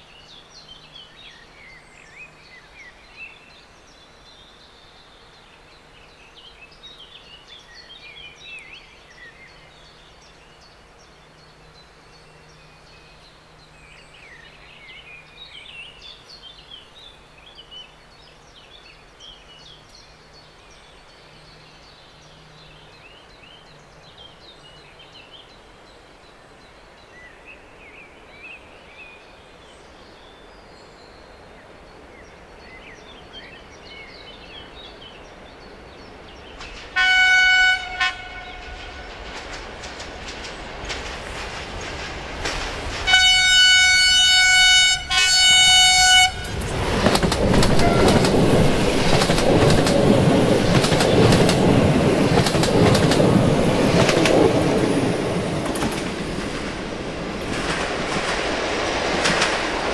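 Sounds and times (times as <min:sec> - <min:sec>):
faint birdsong: 0:00.0 - 0:59.1
train rumbling past: 0:29.8 - 0:59.9
clickety-clack of train wheels: 0:36.5 - 0:37.2, 0:38.5 - 0:44.2, 0:46.4 - 0:59.9
train horn blasts: 0:37.0 - 0:39.2, 0:43.1 - 0:46.7, 0:47.7 - 0:48.4.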